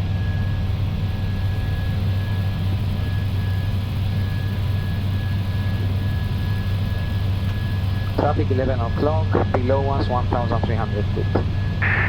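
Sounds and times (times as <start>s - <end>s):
aircraft cockpit drone: 0.0s - 12.0s
faint high whine: 1.3s - 12.0s.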